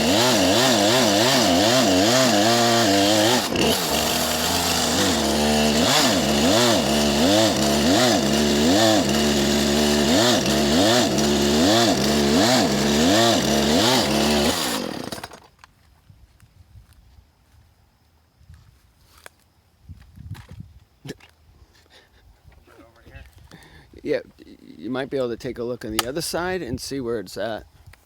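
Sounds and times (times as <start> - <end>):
chainsaw cutting tree trunk: 0.0 - 15.5.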